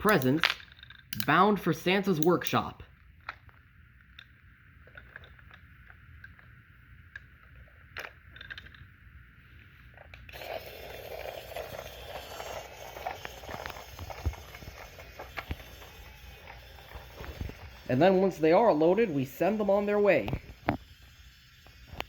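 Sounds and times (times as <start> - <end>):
wooden toy pieces clicking: 0.0 - 1.4, 4.1 - 8.9.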